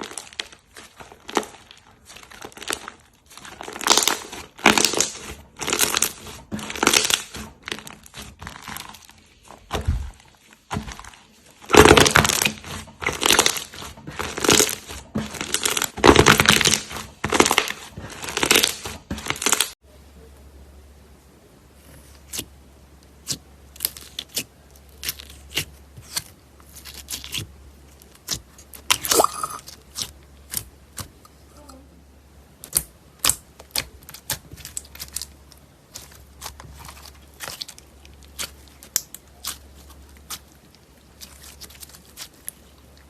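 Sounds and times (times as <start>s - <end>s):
faint low hum: 19.8s - 43.0s.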